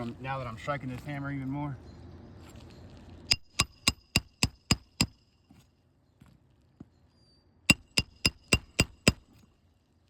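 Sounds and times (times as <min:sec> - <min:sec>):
hammer striking metal: 0:03.3 - 0:05.2, 0:07.7 - 0:09.3.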